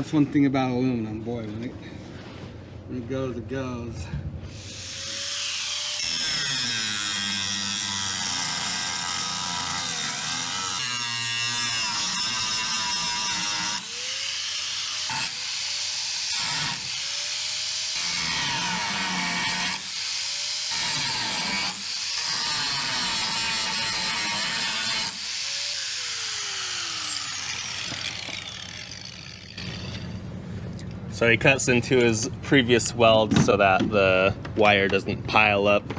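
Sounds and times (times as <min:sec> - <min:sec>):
electric grinder grinding metal: 0:04.5 - 0:30.1.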